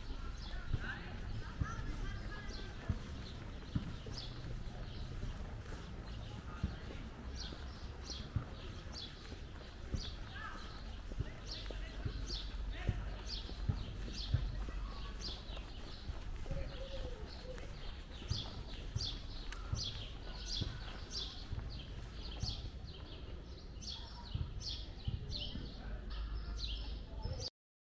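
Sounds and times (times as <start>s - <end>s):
small birds chirping: 0.0s - 27.5s
footsteps thudding: 0.3s - 16.7s.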